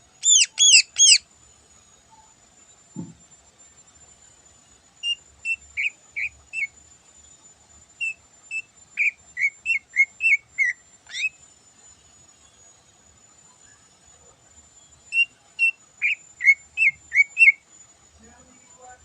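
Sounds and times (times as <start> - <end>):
bird singing whistled notes: 0.2 - 1.2, 5.0 - 6.8, 8.0 - 11.4, 14.9 - 17.7.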